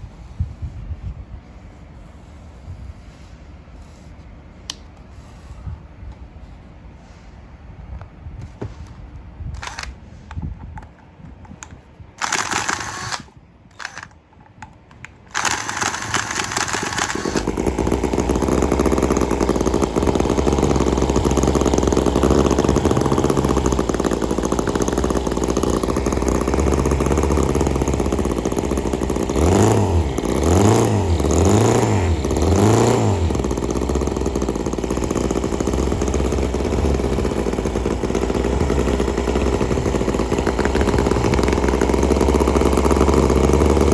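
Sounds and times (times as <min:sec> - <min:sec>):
model engine running and revving: 0:15.4 - 0:43.9.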